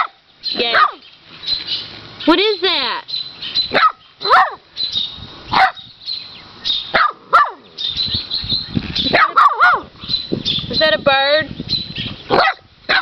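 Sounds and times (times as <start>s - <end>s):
puppy yipping: 3.7s - 4.6s, 5.5s - 5.8s, 6.9s - 7.6s, 9.0s - 9.9s, 12.3s - 13.0s.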